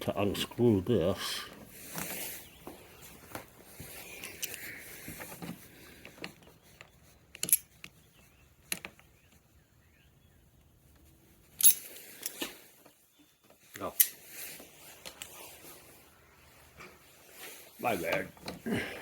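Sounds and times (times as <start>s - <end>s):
light clicks of parts handled: 3.3s - 9.4s, 10.9s - 13.0s.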